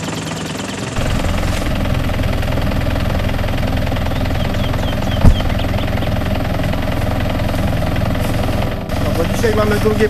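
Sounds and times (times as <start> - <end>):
car engine running: 0.0 - 10.0
loud thump: 5.2 - 5.7.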